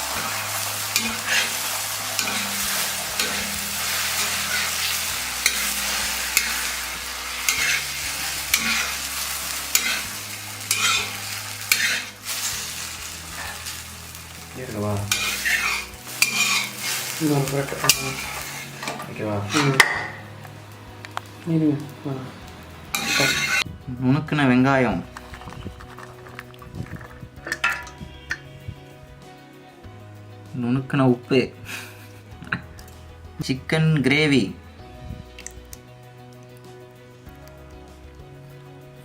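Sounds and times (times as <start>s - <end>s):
metal spatula scraping a pan: 0.0s - 20.6s, 22.9s - 23.7s, 25.1s - 28.5s
egg sizzling in a pan: 0.0s - 23.7s, 25.0s - 28.5s.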